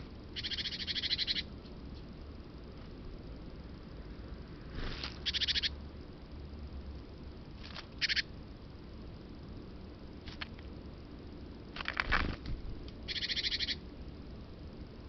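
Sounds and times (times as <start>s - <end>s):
small birds chirping: 0.2s - 2.1s, 4.8s - 5.8s, 7.6s - 8.3s, 13.0s - 13.8s
fast rattling bird call: 0.4s - 1.5s, 4.8s - 5.7s, 8.0s - 8.3s, 13.1s - 13.8s
wing flaps: 11.8s - 12.6s.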